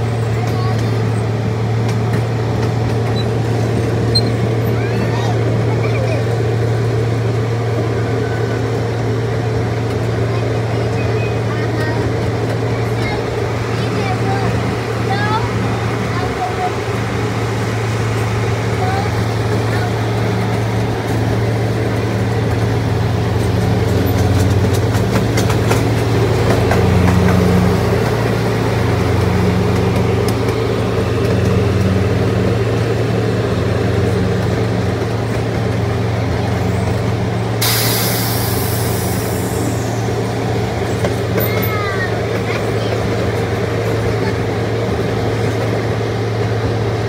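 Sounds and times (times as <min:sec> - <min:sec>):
miniature train engine droning: 0:00.0 - 0:47.0
burst of hiss: 0:37.6 - 0:40.1.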